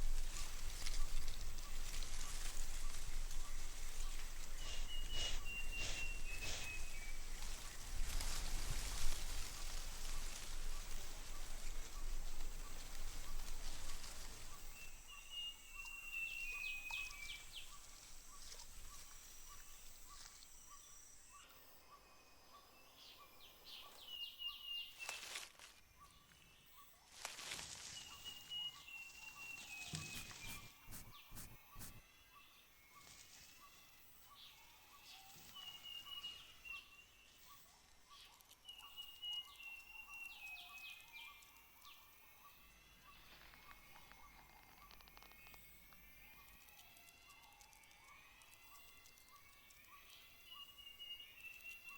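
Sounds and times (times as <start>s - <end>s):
pulsing insect call: 3.6s - 7.6s.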